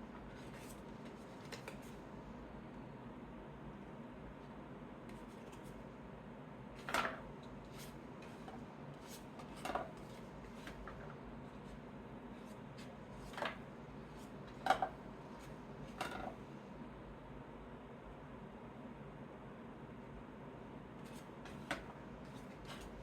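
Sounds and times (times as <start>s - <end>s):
cards tapping and clicking: 1.4s - 1.9s.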